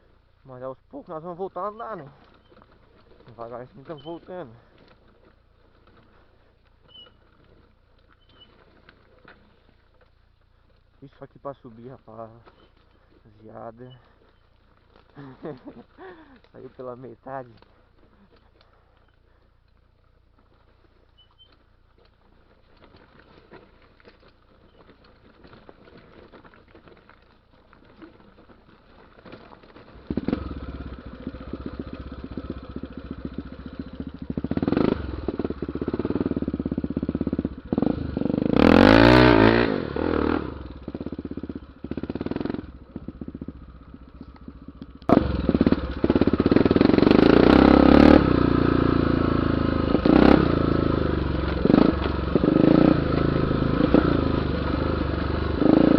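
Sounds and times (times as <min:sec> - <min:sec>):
motorcycle engine revving: 0:29.6 - 0:55.9.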